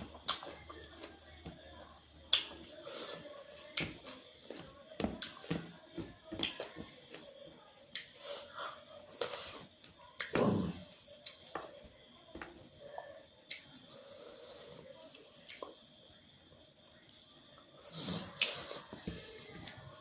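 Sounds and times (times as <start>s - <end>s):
chewing with wet mouth clicks: 7.8s - 8.6s, 13.4s - 13.7s, 17.0s - 17.5s.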